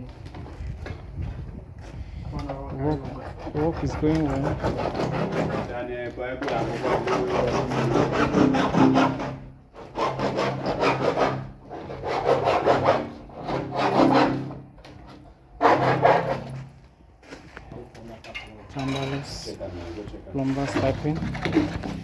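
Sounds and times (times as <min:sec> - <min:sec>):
hand tool rasping on pipe: 0:02.7 - 0:05.8, 0:06.4 - 0:14.6, 0:15.6 - 0:16.7.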